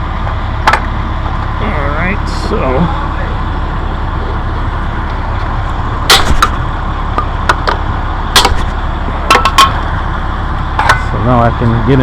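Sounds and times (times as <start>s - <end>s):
truck engine rumble: 0.0s - 12.0s
parts clicking and knocking: 6.1s - 9.8s, 10.8s - 11.2s.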